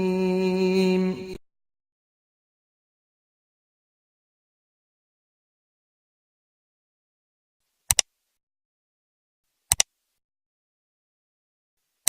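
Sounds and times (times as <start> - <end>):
sharp double clicks: 9.7 - 9.9.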